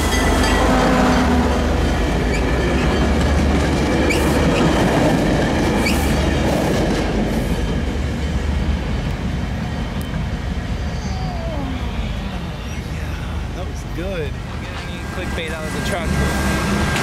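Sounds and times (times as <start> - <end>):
train wheels clickety-clack: 0.0 - 10.4, 14.5 - 17.0.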